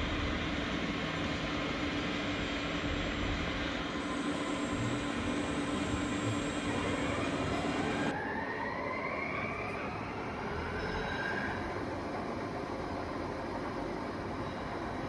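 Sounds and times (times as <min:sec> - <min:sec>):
steady machinery hum: 0:00.0 - 0:08.2.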